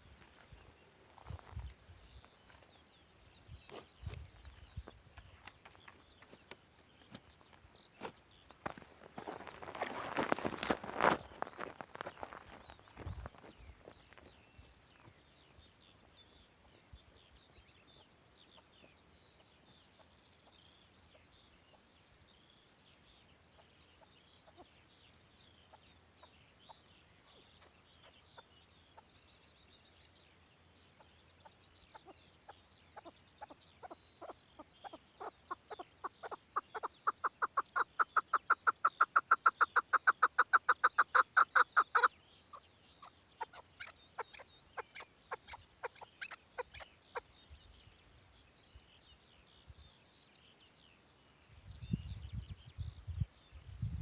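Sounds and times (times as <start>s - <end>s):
faint high chirping: 0.0s - 54.0s
partridge clucking calls: 23.5s - 24.8s, 30.9s - 47.3s.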